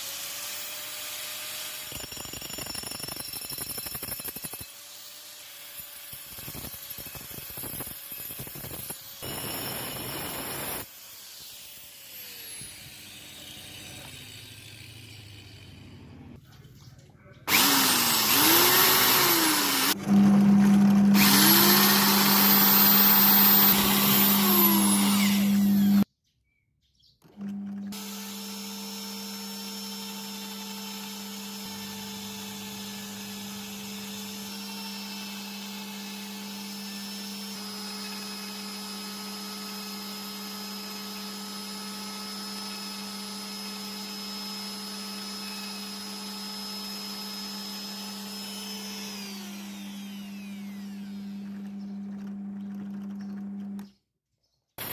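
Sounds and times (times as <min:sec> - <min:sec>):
power tool cutting wood: 0:00.0 - 0:16.4, 0:17.5 - 0:26.1, 0:27.3 - 0:53.9
quiet motor humming: 0:49.5 - 0:53.9.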